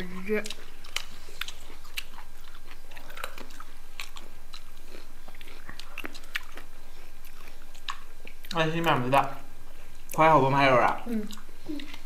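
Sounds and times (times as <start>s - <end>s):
people crunching fresh fruit: 0.0s - 9.0s.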